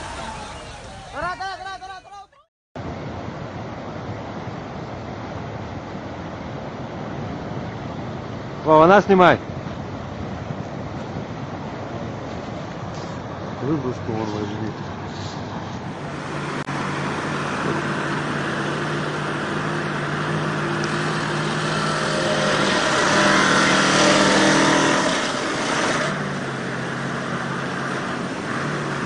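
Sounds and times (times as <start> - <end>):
truck engine under load: 9.5 - 29.0.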